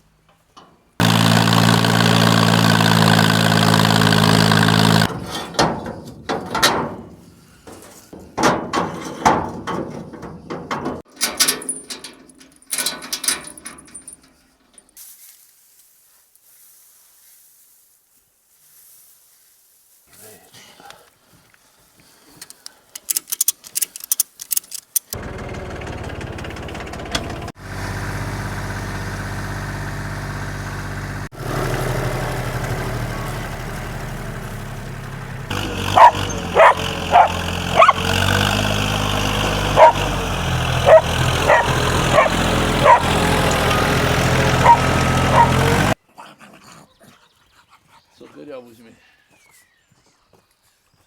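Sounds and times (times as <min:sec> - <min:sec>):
tractor diesel engine running: 0:01.0 - 0:06.8, 0:25.2 - 0:46.0
quick clicks: 0:22.4 - 0:25.2
dog barking: 0:35.9 - 0:38.0, 0:39.7 - 0:40.0, 0:40.8 - 0:43.1, 0:44.6 - 0:45.6.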